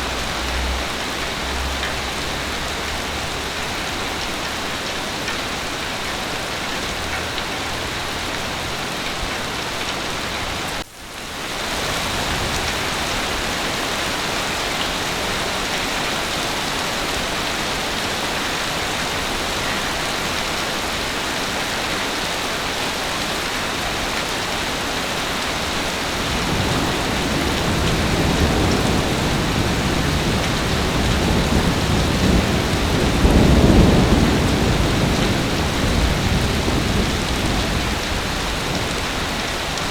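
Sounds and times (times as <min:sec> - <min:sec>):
heavy rain falling: 0:00.0 - 0:39.9
low rumble of thunder: 0:25.6 - 0:39.8.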